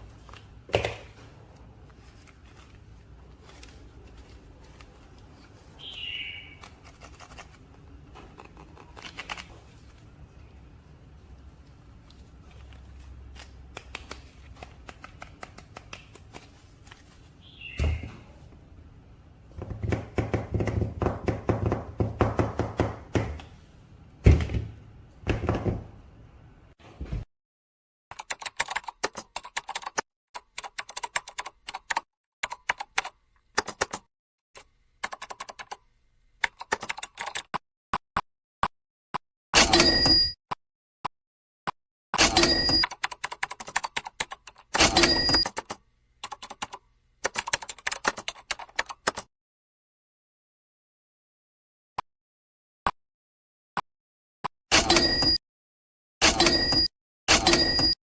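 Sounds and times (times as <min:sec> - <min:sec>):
computer keyboard typing: 0:28.1 - 0:34.0, 0:42.7 - 0:44.7, 0:45.3 - 0:49.2.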